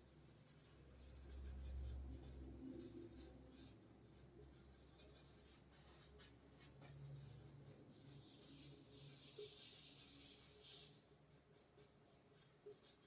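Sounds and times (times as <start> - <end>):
pen scratching while writing: 8.1 - 13.0.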